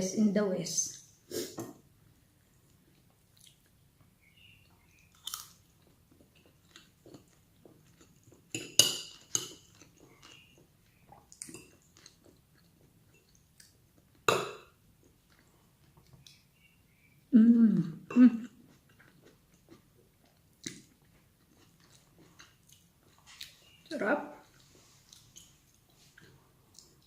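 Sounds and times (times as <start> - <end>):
person chewing and biting food: 5.0 - 8.5.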